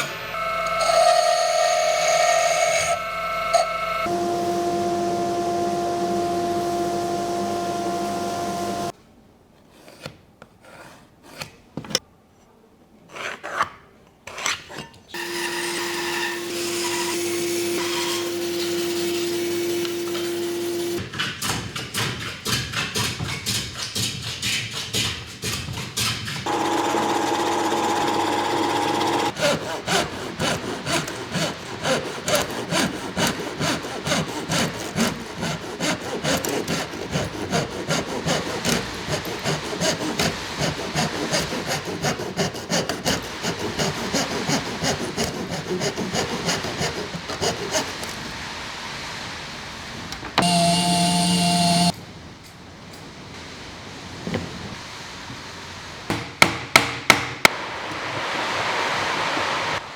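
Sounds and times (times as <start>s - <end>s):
loud steady tone: 3.0s - 8.9s
steady hum: 4.1s - 8.9s
strokes on wood: 28.0s - 48.2s.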